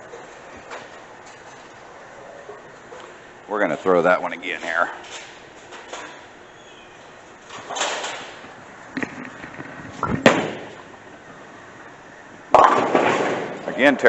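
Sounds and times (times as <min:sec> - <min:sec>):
bowling pins crashing: 0:09.0 - 0:11.0, 0:12.5 - 0:13.9
bowling ball rolling down lane: 0:12.5 - 0:13.8.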